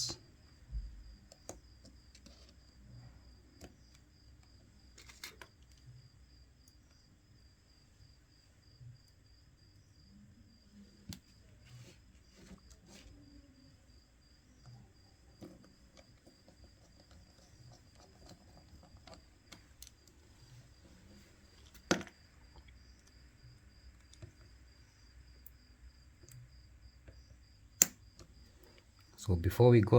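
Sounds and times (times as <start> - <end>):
faint clicks and taps of tools: 0.0 - 2.6, 3.6 - 5.9, 26.2 - 29.2.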